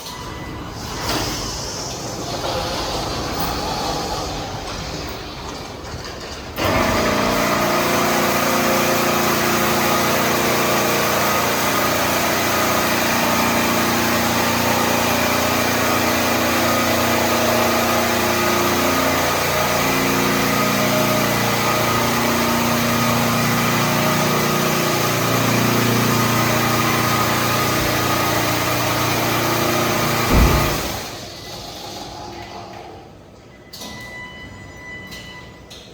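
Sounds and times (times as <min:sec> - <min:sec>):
car wash machinery motor hum: 0:00.0 - 0:34.2
machinery thump: 0:27.4 - 0:31.2.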